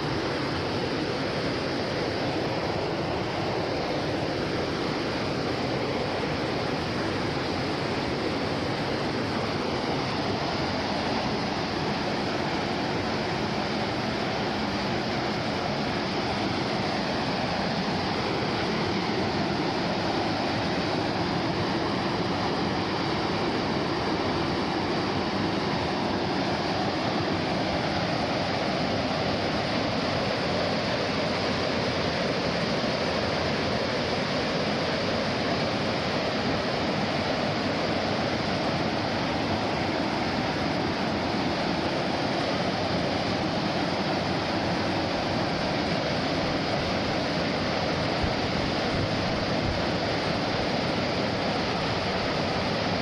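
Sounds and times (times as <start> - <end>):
rushing of falling water: 0.0 - 53.0.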